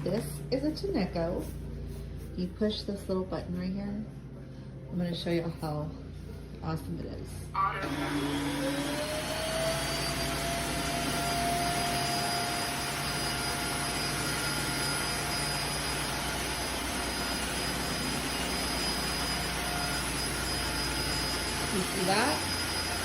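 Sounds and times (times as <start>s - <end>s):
floor cleaner motor whine: 0.0s - 1.4s, 7.6s - 23.0s.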